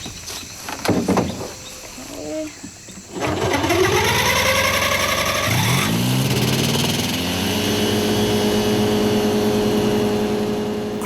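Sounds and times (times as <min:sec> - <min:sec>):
ultralight aircraft engine revving: 0:03.2 - 0:11.0.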